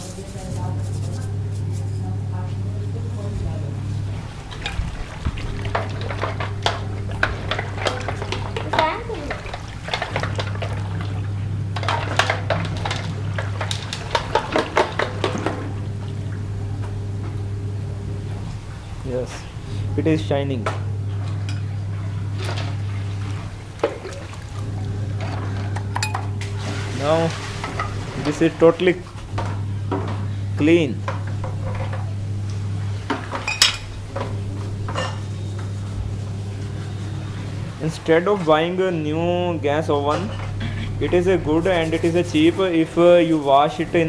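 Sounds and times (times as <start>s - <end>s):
steady low hum: 0.0s - 44.0s
water splashing: 4.1s - 16.4s, 21.3s - 25.8s, 26.4s - 29.2s.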